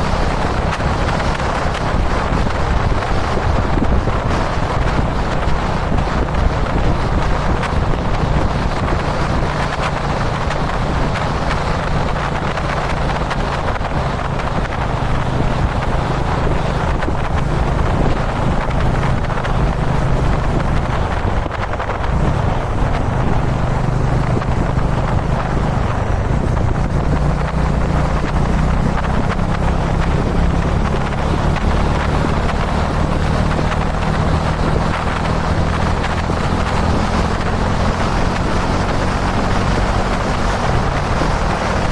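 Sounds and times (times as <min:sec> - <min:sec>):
motorcycle engine running: 0:00.0 - 0:41.9
wind rushing over microphone: 0:00.0 - 0:41.9.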